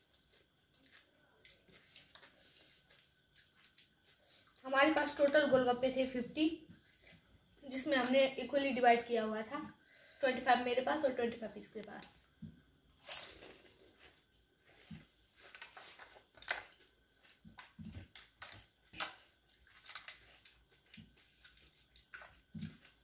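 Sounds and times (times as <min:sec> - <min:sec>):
crunchy chewing: 0:00.0 - 0:04.6, 0:12.0 - 0:23.0.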